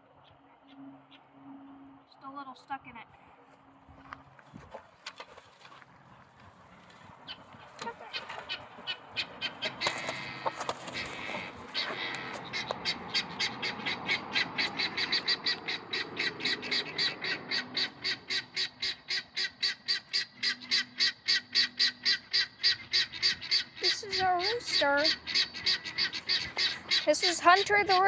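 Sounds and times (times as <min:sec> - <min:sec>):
guinea fowl alarm chattering: 0:07.2 - 0:28.0
rustling: 0:09.7 - 0:12.5.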